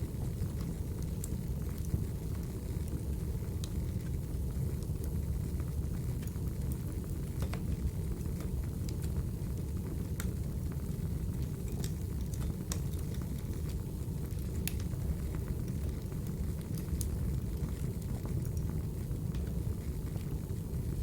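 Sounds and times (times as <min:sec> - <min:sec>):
firewood crackling: 0:05.8 - 0:20.4.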